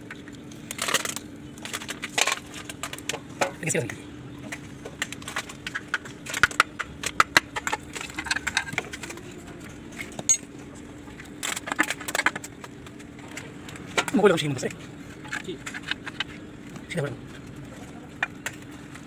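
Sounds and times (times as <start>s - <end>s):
metal tools clinking: 10.2s - 10.5s.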